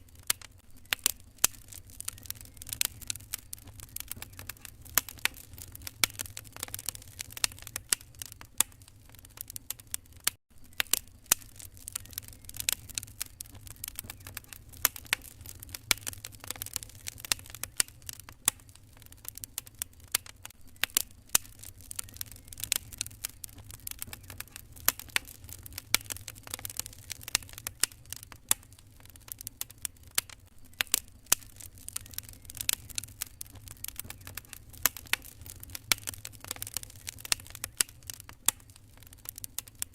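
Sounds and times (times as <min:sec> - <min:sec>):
low steady rumble: 0:00.0 - 0:09.7, 0:20.5 - 0:30.0
wood fire crackling: 0:00.0 - 0:39.9.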